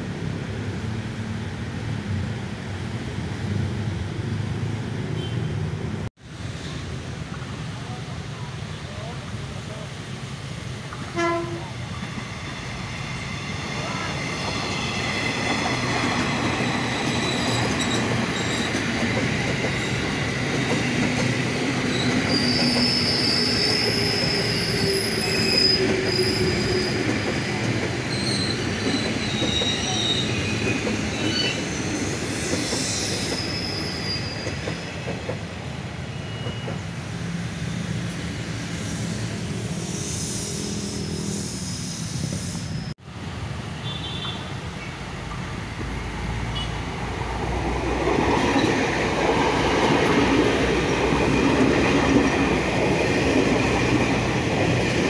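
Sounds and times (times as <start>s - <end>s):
train rumble and clatter: 0.0s - 43.6s, 44.2s - 55.0s
train wheels squealing on rails: 11.0s - 43.0s, 43.8s - 55.0s.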